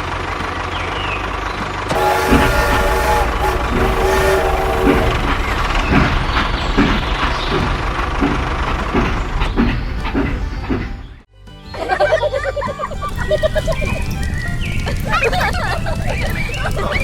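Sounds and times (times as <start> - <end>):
vehicle engine rumbling: 0.0 - 11.3, 12.4 - 17.0
horn tone: 1.9 - 6.2
regular knocking: 1.9 - 11.2.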